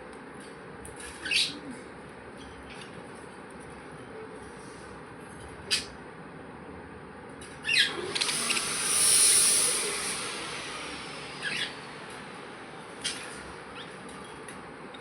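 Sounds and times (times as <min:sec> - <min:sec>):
high hiss: 0:08.0 - 0:14.1
budgerigars chirping: 0:11.4 - 0:11.8.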